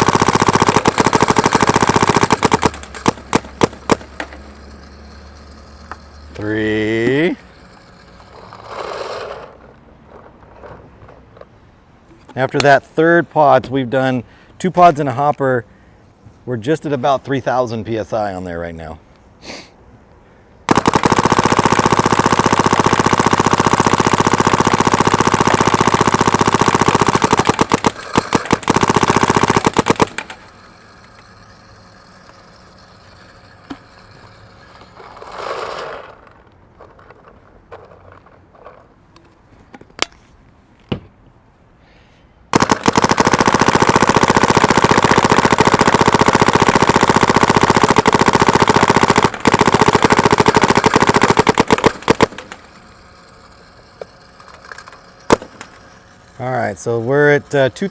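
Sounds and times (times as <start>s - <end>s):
paintball marker rapid firing: 0.0s - 6.2s, 20.7s - 34.4s, 42.5s - 56.1s
scattered clicks: 0.0s - 8.6s, 42.6s - 56.0s.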